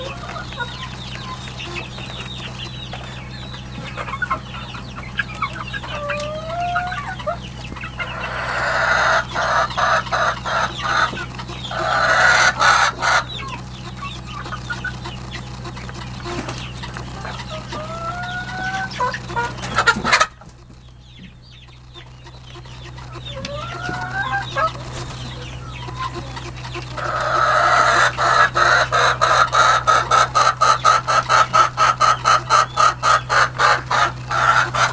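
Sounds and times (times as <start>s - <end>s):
chickens clucking: 0.0s - 34.9s
chickens squawking: 0.0s - 34.9s
steady low hum: 0.0s - 34.9s.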